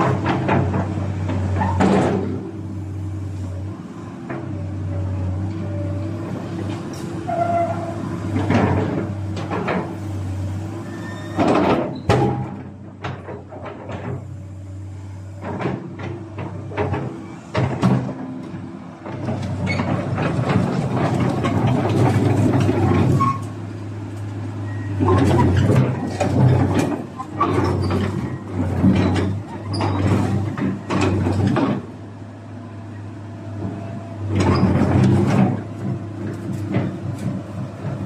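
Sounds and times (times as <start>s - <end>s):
machine knocks and clanks: 0.0s - 2.4s, 8.3s - 10.0s, 11.4s - 14.4s, 15.4s - 23.4s, 25.0s - 32.0s, 33.6s - 38.0s.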